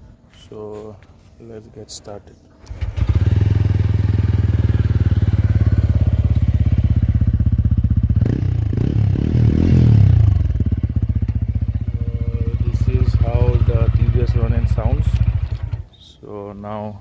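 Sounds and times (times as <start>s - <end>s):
motorcycle engine idling and revving: 2.7s - 15.9s.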